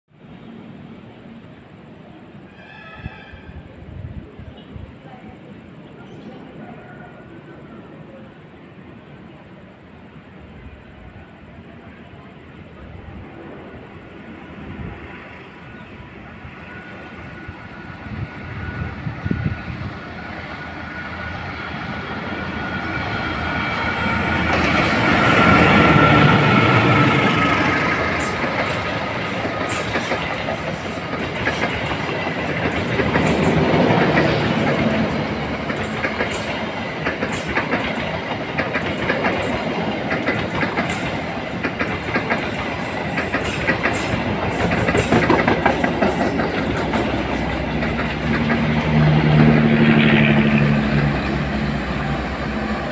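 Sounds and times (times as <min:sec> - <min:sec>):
train passing: 0:00.1 - 0:52.9
wheels clicking on rails: 0:22.6 - 0:52.9.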